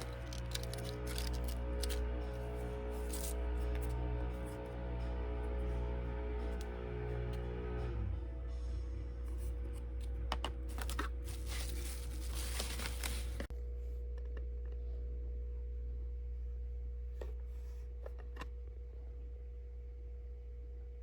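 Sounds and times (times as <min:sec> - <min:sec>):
packaging crinkling and tearing: 0:00.0 - 0:02.0, 0:03.0 - 0:03.4, 0:10.7 - 0:13.5
steady low hum: 0:00.0 - 0:21.0.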